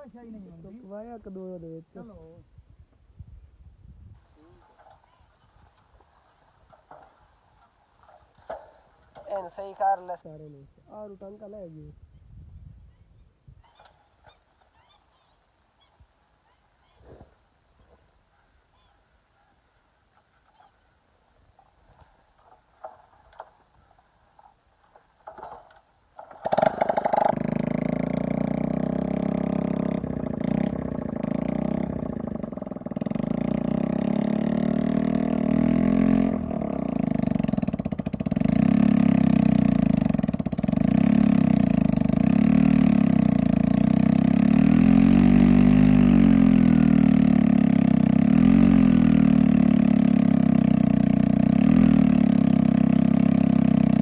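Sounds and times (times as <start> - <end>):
engine starting and running: 21.5 - 54.0.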